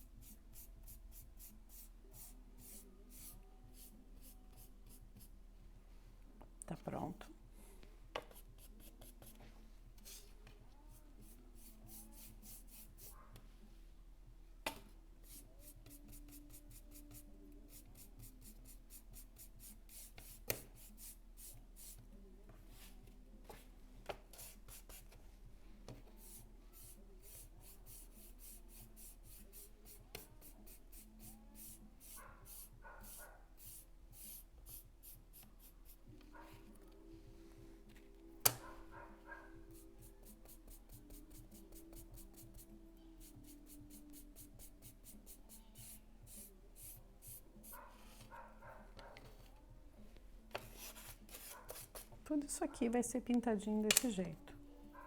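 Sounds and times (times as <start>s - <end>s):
paintbrush strokes: 0.2s - 5.3s, 8.3s - 13.3s, 26.1s - 37.9s, 39.3s - 48.6s, 50.6s - 52.1s.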